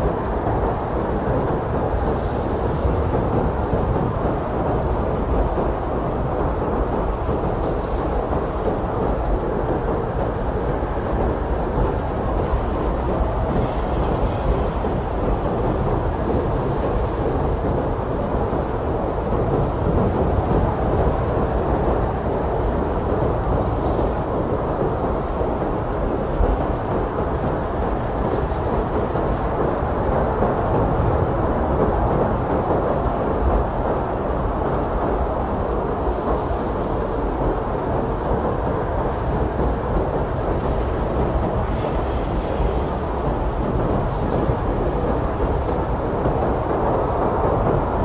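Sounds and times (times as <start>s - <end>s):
blizzard wind rushing: 0.0s - 48.0s.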